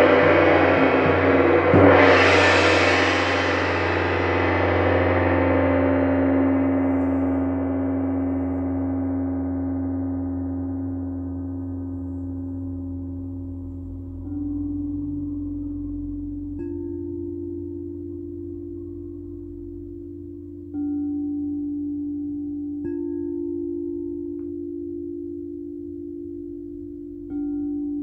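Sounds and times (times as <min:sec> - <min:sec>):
gong ringing: 0:00.0 - 0:10.9.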